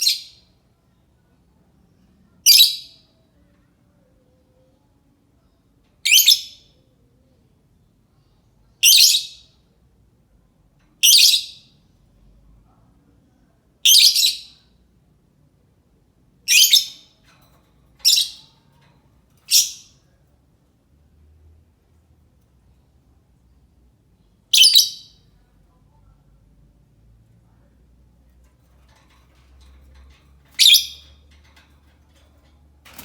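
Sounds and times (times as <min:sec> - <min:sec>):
lovebird shrill calls: 0:30.6 - 0:31.0.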